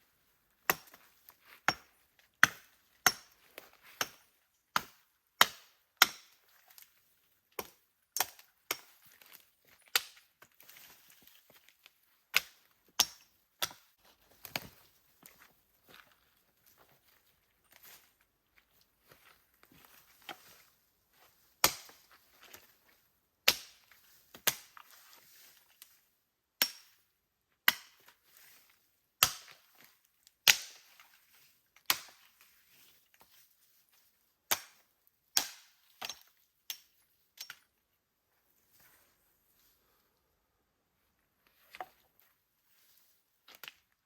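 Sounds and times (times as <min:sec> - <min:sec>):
wood being chopped: 0:00.7 - 0:01.0, 0:01.7 - 0:04.2, 0:04.8 - 0:06.4, 0:21.6 - 0:22.1, 0:23.4 - 0:23.8, 0:26.6 - 0:26.9, 0:29.2 - 0:29.6, 0:30.4 - 0:30.9, 0:31.9 - 0:32.2, 0:34.5 - 0:34.8, 0:35.4 - 0:36.8.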